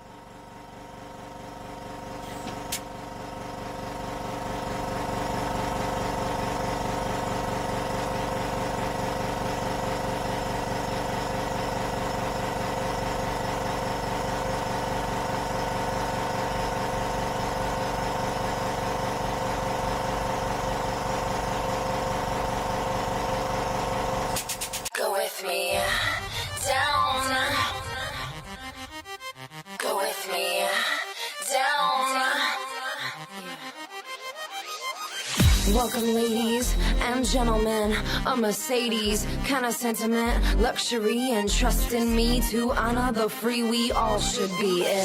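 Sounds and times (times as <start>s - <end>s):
hydraulic pump motor humming: 0.0s - 24.9s.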